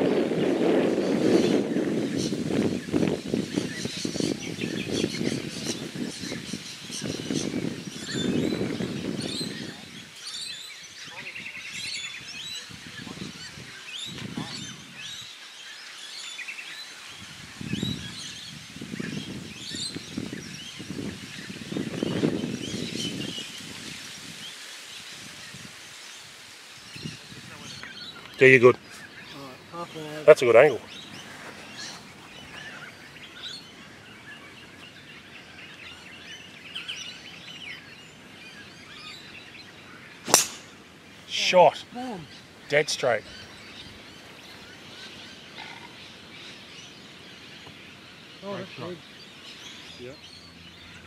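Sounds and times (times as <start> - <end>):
wind gusts on microphone: 0.0 - 15.5, 16.1 - 51.0
birds chirping and warbling: 0.0 - 51.0
outdoor background hiss: 0.0 - 51.0.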